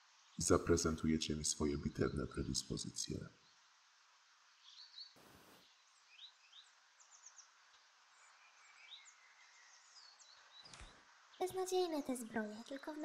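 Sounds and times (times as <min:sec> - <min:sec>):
steady low hiss: 0:00.0 - 0:13.0
bird chirps: 0:04.6 - 0:11.6.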